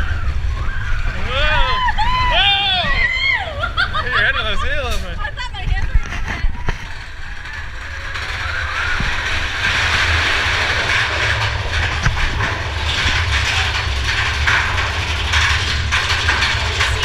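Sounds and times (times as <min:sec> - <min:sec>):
roller coaster wheels rumbling: 0:00.0 - 0:17.0
rushing rattling noise: 0:03.7 - 0:17.0.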